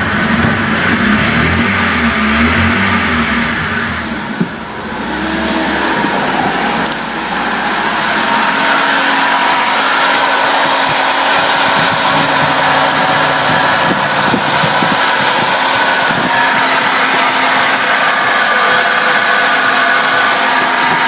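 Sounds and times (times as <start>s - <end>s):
petrol engine idling: 0.0s - 21.0s.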